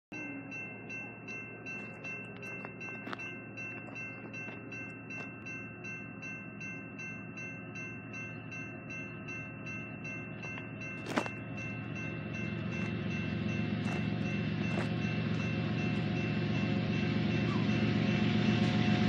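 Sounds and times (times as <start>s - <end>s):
bell ringing rhythmically: 0.1s - 19.0s
train rumbling: 0.2s - 19.0s.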